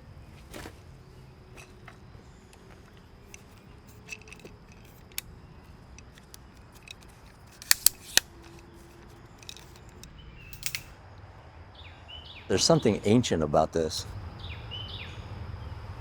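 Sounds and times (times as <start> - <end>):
camera shutter clicking: 7.5 - 8.3.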